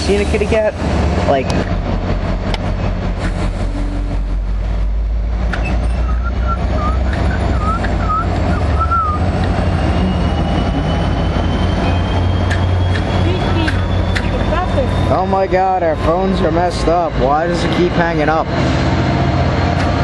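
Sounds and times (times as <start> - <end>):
diesel locomotive rumbling: 0.0 - 20.0.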